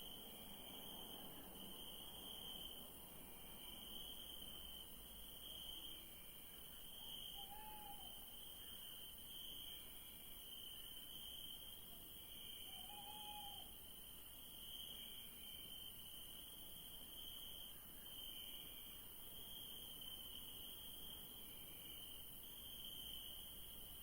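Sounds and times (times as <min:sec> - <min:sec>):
crickets chirping: 0:00.0 - 0:24.0
owl hooting: 0:07.4 - 0:08.1, 0:12.7 - 0:13.7.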